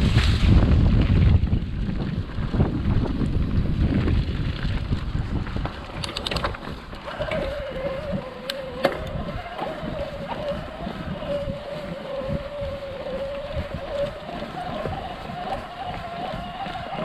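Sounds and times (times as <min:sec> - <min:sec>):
bike rolling on dirt trail: 0:00.0 - 0:17.0
wind buffeting microphone: 0:00.0 - 0:17.0
bike clicks and knocks: 0:05.5 - 0:07.3
wavering whine: 0:07.0 - 0:17.0.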